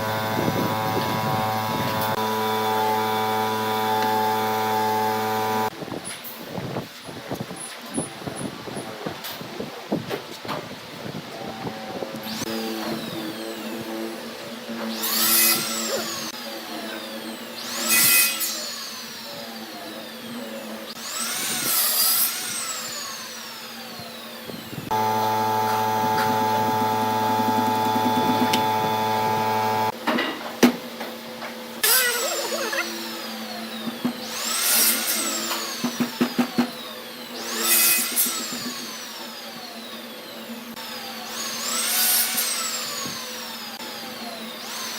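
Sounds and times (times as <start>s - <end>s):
motor running steadily: 0.0s - 5.7s, 22.6s - 30.0s.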